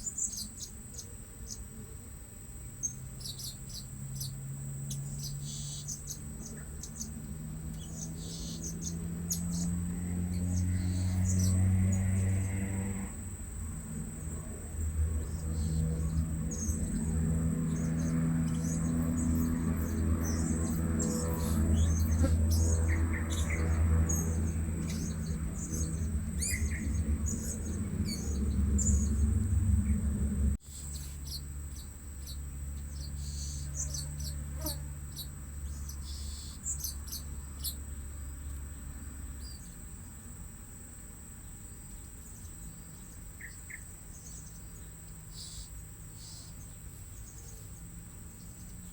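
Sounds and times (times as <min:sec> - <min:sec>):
high insect drone: 0:00.0 - 0:48.9
low rumble: 0:12.8 - 0:30.6.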